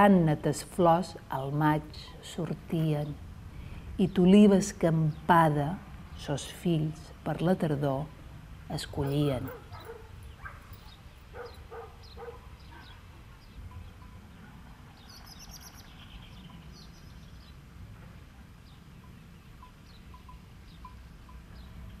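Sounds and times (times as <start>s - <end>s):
low wind rumble: 0.0s - 22.0s
small birds chirping: 8.7s - 17.7s, 18.6s - 22.0s.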